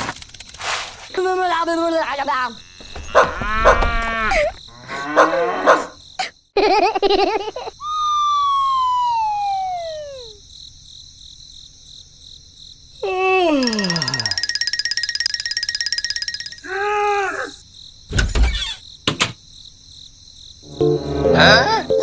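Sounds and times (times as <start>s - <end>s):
squeaky warbling cartoon calls: 20.7s - 22.0s.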